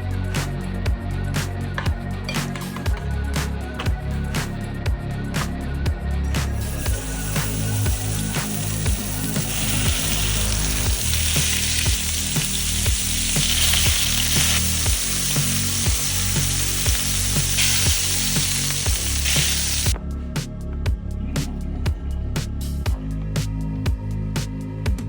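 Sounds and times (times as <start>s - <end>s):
food sizzling in a frying pan: 6.6s - 20.0s.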